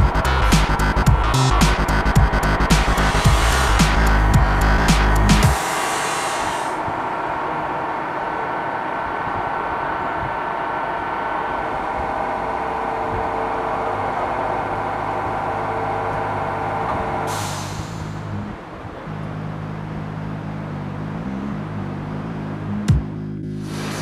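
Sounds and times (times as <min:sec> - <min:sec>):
deeper hum: 0:00.0 - 0:07.5.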